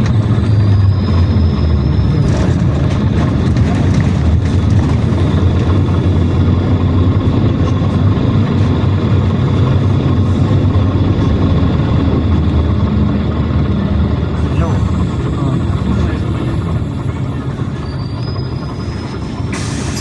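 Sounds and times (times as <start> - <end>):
bus engine drone: 0.0 - 20.0
road noise: 0.0 - 20.0.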